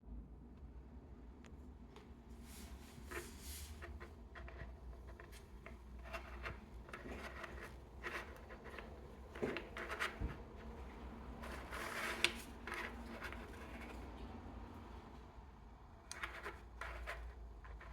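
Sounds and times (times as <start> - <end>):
packaging rustling and scraping: 3.1 - 14.1.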